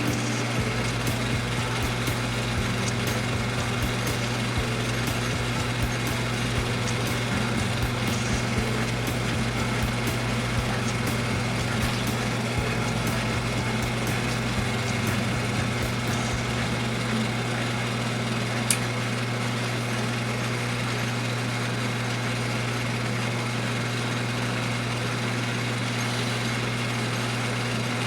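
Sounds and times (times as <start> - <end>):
metal lathe running: 0.0 - 28.0.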